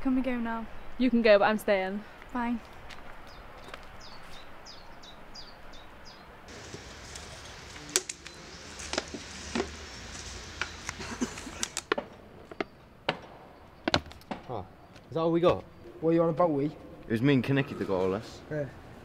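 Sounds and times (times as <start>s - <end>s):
small bird chirping: 6.5s - 11.0s
low outdoor rumble: 6.5s - 11.9s
sharp clicks and knocks: 6.5s - 13.3s.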